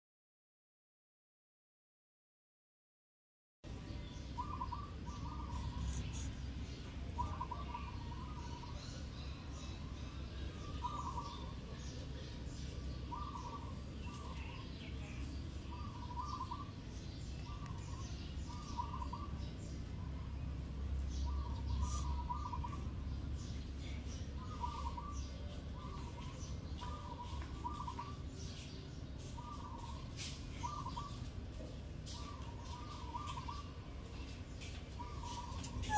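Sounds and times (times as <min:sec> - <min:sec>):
steady low rumble: 0:03.7 - 0:28.4
bird calling in short phrases: 0:35.1 - 0:35.9.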